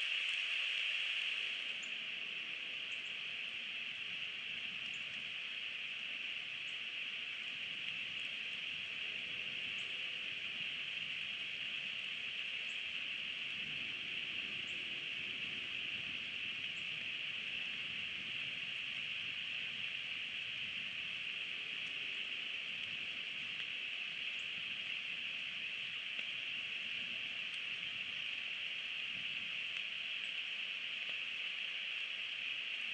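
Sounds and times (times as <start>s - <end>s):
steady rain falling: 0.0s - 32.9s
faint light ticks: 4.7s - 9.0s, 21.7s - 32.9s.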